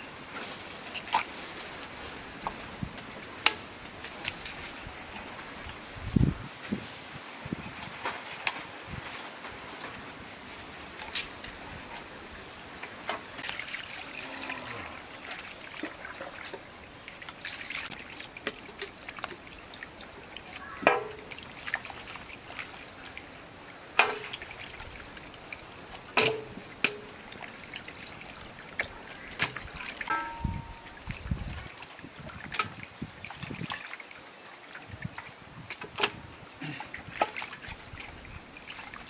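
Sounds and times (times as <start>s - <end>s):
water trickling and splashing: 0.0s - 39.0s
short ringing tone: 30.1s - 31.0s.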